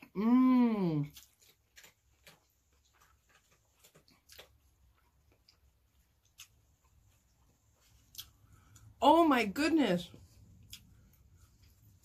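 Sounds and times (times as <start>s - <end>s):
wet mouth clicks from chewing: 1.1s - 7.0s, 8.0s - 8.9s, 10.6s - 11.8s.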